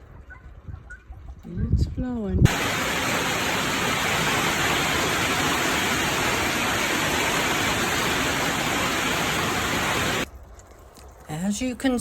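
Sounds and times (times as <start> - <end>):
floodwater rushing: 2.5 - 10.3.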